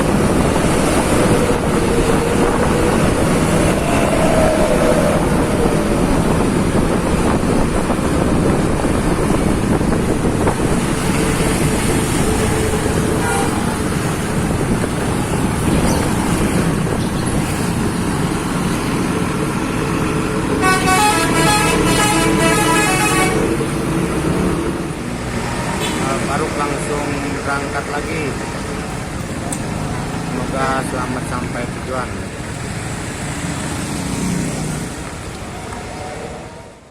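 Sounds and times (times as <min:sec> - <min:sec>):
bus engine running loud: 0:00.0 - 0:36.9
multi-tone bus horn: 0:13.2 - 0:13.8, 0:20.6 - 0:23.7.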